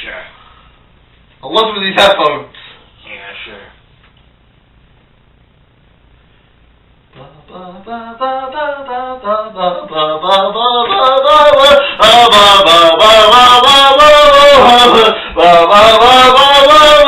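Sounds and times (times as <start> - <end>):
person singing unaccompanied: 7.1 - 17.0.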